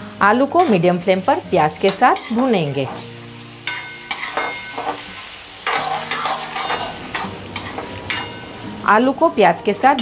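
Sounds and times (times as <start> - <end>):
potatoes sizzling in oil: 0.0 - 10.0
utensil scraping a metal pan: 3.7 - 8.5.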